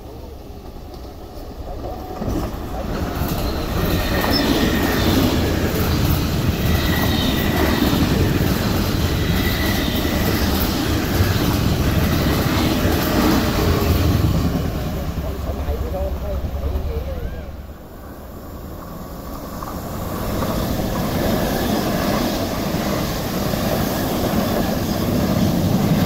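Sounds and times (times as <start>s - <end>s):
train wheels rumbling on rail: 0.0s - 26.0s
faint high wheel squeal: 3.0s - 5.5s.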